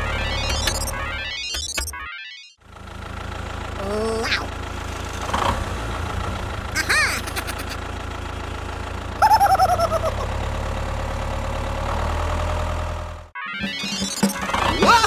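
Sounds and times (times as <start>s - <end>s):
squeaky chirps: 13.4s - 15.0s.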